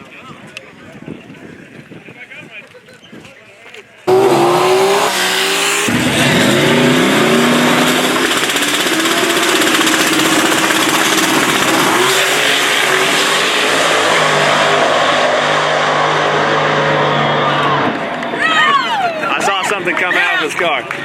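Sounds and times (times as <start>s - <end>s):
race car engines at full throttle: 4.0s - 19.8s.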